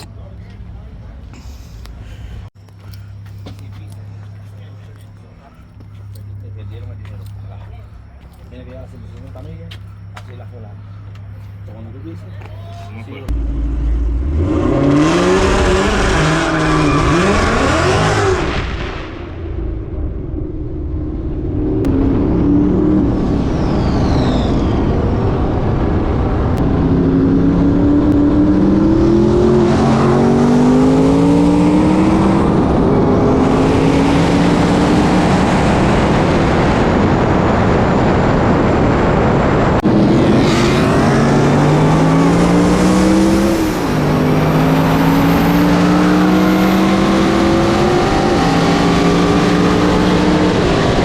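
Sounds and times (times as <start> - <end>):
car engine at full throttle: 13.0 - 51.0.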